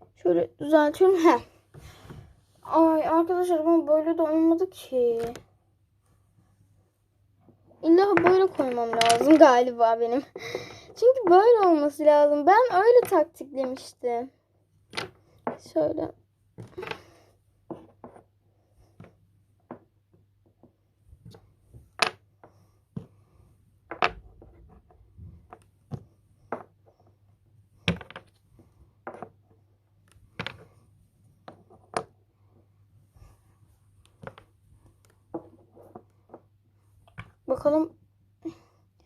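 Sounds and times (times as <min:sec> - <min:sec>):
wooden blocks clicking and knocking: 0:08.0 - 0:09.8, 0:12.6 - 0:14.0, 0:14.8 - 0:15.8, 0:16.6 - 0:23.2, 0:23.8 - 0:30.8, 0:31.4 - 0:32.7, 0:34.0 - 0:37.5.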